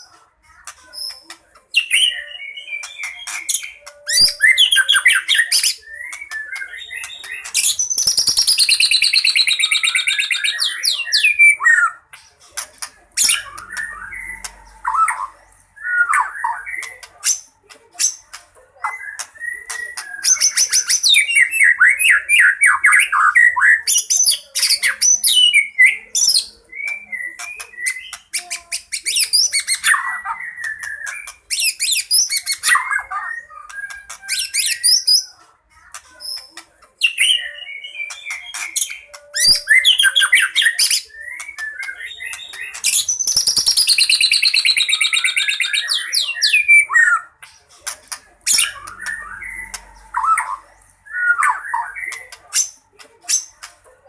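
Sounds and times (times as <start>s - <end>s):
songbird singing varied song: 36.4s - 52.8s.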